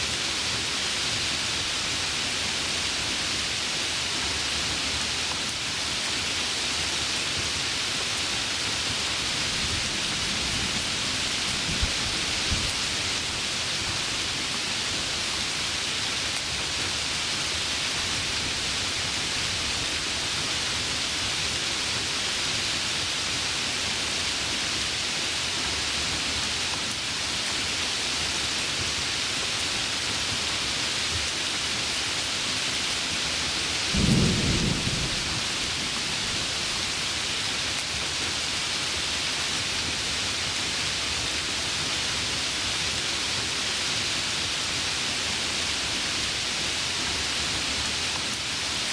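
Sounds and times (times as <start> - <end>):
heavy rain: 0.0 - 48.9
low rumble of thunder: 10.0 - 13.0, 33.9 - 36.7.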